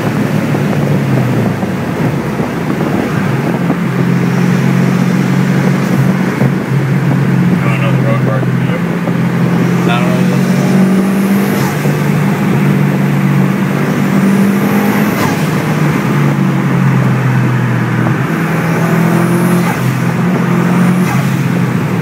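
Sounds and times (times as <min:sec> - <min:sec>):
car engine pulling hard: 0:00.0 - 0:22.0
road noise: 0:00.0 - 0:22.0.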